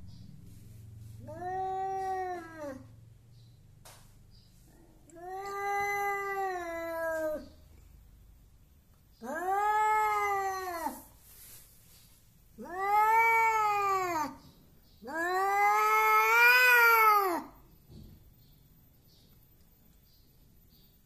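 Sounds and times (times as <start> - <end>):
angry cat yowling: 1.2 - 2.9, 4.9 - 7.6, 9.2 - 11.1, 12.6 - 14.4, 15.0 - 17.6.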